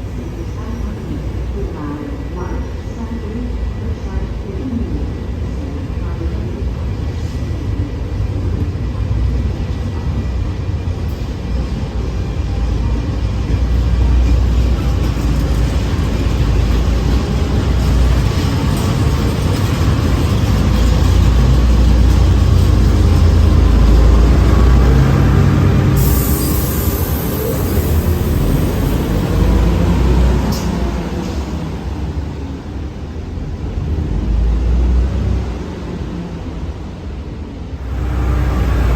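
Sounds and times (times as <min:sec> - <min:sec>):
diesel engine rumbling: 0:37.8 - 0:38.9.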